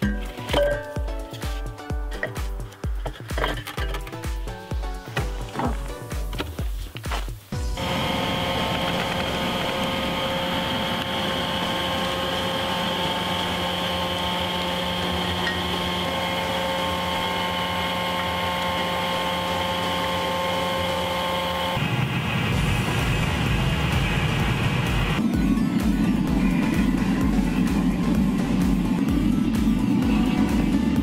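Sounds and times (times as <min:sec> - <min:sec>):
electric blower whining: 0:07.6 - 0:31.0
loud low noise: 0:21.5 - 0:31.0.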